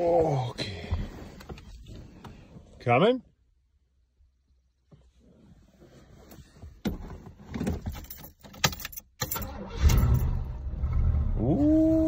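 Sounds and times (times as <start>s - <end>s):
car engine starting and rumbling: 4.0s - 12.0s
keys jangling in ignition: 7.7s - 10.4s.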